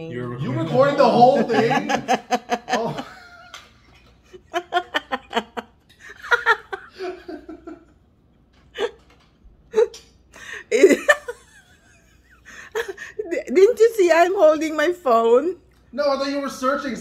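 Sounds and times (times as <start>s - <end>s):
people laughing: 0.4s - 8.0s.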